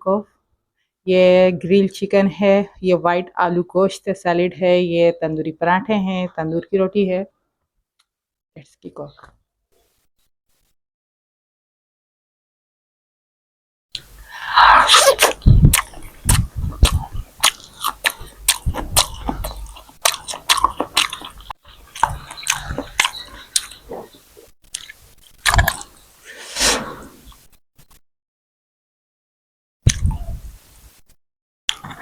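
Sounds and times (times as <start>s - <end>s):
wet chewing with mouth clicks: 14.0s - 26.0s.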